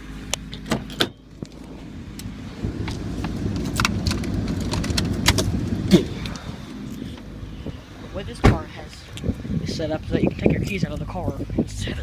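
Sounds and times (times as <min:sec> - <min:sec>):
car engine idling: 0:00.0 - 0:12.0
loud low rumble: 0:00.0 - 0:12.0
sharp clicks and crunches: 0:00.3 - 0:07.2.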